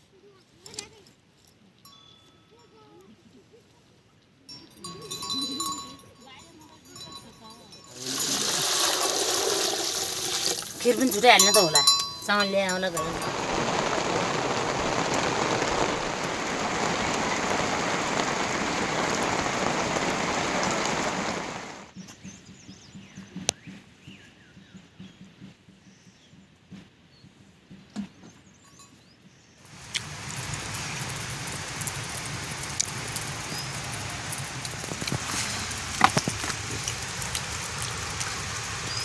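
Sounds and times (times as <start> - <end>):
rain falling: 6.9 - 21.9, 29.7 - 39.0
scattered drips and taps: 29.7 - 39.0.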